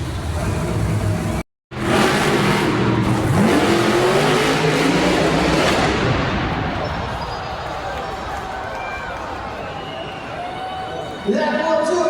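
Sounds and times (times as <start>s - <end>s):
monster truck engine revving: 0.0s - 7.1s.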